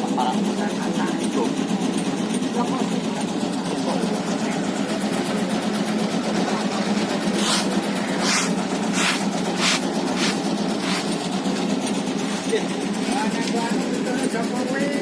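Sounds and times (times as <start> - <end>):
cutting machine humming and clattering: 0.0 - 15.0
swishing strokes: 7.3 - 11.2.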